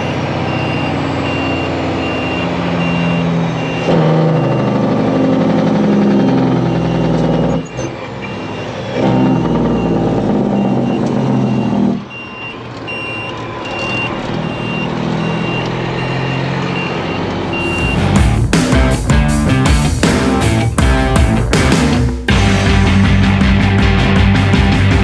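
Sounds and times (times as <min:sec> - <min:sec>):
reversing alarm beeping: 0:00.0 - 0:18.6
diesel truck engine running: 0:00.0 - 0:25.0.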